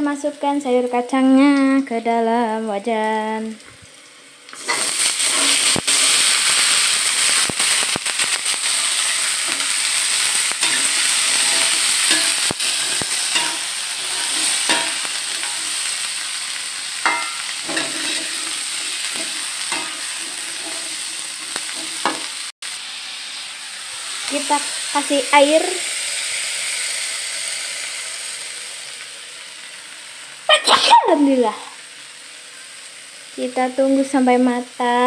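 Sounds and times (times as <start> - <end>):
beans sizzling in a wok: 0.0 - 35.0
spatula scraping a wok: 4.6 - 22.5.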